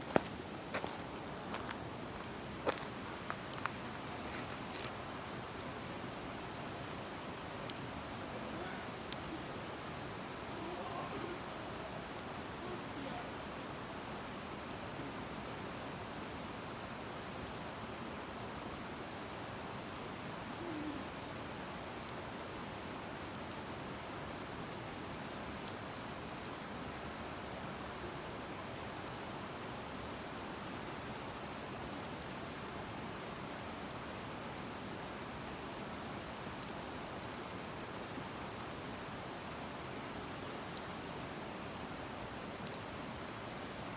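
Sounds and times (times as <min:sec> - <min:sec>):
fire hissing: 0:00.0 - 0:16.1
campfire crackling and popping: 0:00.0 - 0:43.9.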